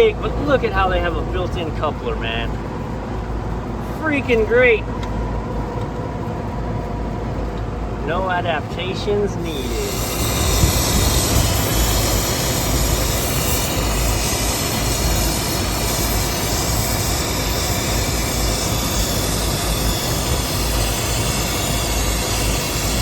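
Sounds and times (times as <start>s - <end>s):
torch burning with rushing hiss: 8.1s - 23.0s.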